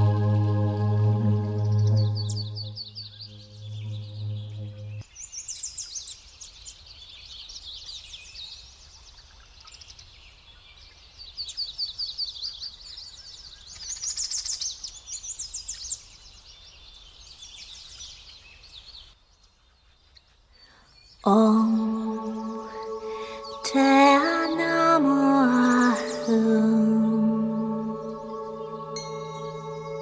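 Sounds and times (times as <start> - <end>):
low musical drone: 0.0 - 5.0, 21.3 - 30.0
songbirds chirping and trilling: 21.0 - 30.0.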